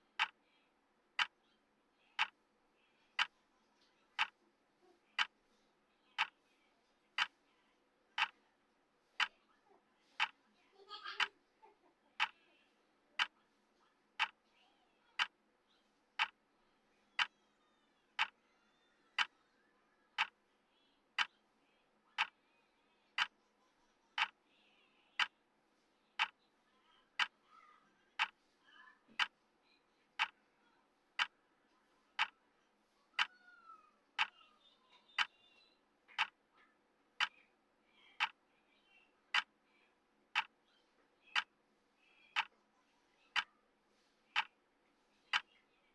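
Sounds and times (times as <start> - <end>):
timer ticking: 0.0 - 0.4, 1.2 - 1.4, 2.2 - 2.4, 3.2 - 3.4, 4.2 - 4.4, 5.2 - 5.4, 6.2 - 6.4, 8.2 - 8.4, 9.2 - 9.4, 10.2 - 10.4, 12.2 - 12.4, 13.2 - 13.4, 14.2 - 14.4, 15.2 - 15.4, 16.2 - 16.4, 17.1 - 17.4, 18.2 - 18.4, 19.2 - 19.4, 20.2 - 20.4, 22.2 - 22.4, 23.2 - 23.4, 24.2 - 24.4, 25.2 - 25.4, 26.2 - 26.4, 27.2 - 27.4, 28.2 - 28.5, 29.1 - 29.4, 30.2 - 30.4, 31.2 - 31.4, 32.2 - 32.4, 34.2 - 34.4, 36.1 - 36.4, 37.2 - 37.4, 38.2 - 38.4, 39.3 - 39.6, 40.3 - 40.6, 41.3 - 41.6, 42.3 - 42.6, 43.3 - 43.5, 44.3 - 44.6, 45.3 - 45.5.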